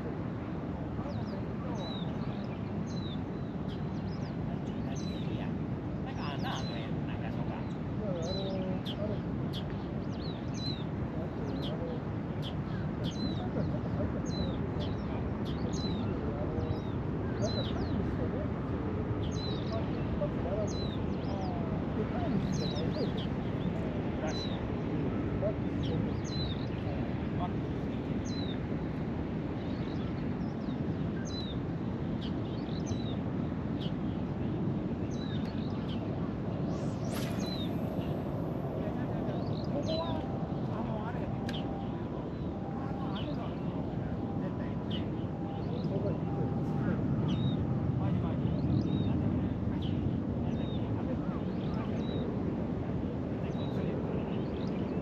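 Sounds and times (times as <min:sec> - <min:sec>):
small birds chirping: 0:35.1 - 0:43.6
low rushing noise: 0:35.7 - 0:50.3.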